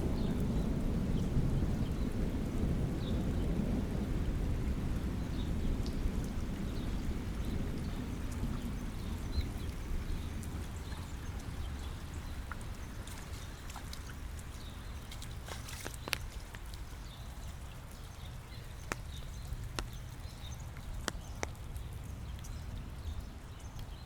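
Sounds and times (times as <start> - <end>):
distant thunder rumble: 0.0 - 14.7
rain falling: 0.0 - 24.0
drops ticking: 10.4 - 24.0.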